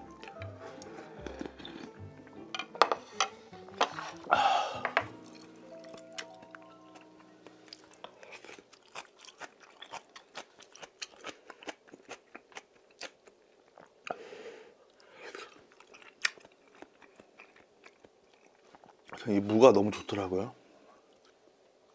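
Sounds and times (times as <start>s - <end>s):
close chewing and crunching: 0.0s - 2.1s, 5.1s - 14.2s, 14.8s - 19.4s, 20.9s - 21.4s.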